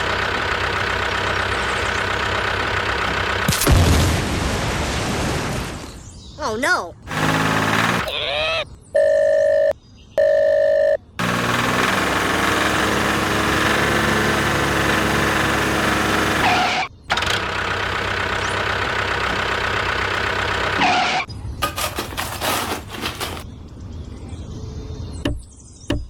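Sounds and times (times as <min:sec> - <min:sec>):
small engine running: 0:00.0 - 0:03.6, 0:07.0 - 0:08.2, 0:11.2 - 0:23.4.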